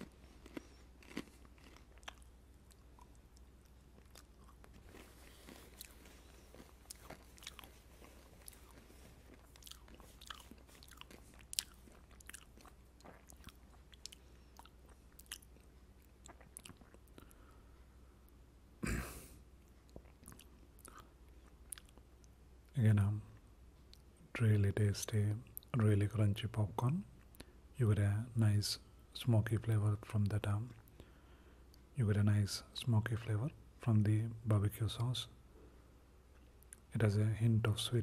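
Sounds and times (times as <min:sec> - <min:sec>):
popcorn crunching: 0:00.0 - 0:17.4.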